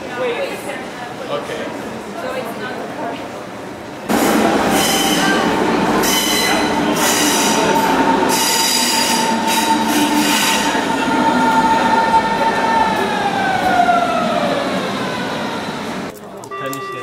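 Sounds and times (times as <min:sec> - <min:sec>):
train rumble: 0:02.8 - 0:16.2
train wheel squeals: 0:06.0 - 0:10.8.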